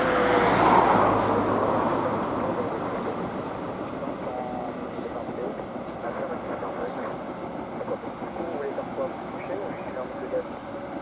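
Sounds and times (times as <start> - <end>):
jet airliner roar: 0.0 - 11.0.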